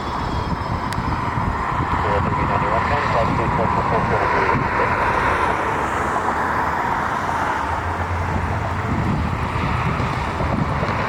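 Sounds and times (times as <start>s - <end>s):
high engine whine: 0.0s - 11.0s
jet engines rumbling: 0.0s - 11.0s.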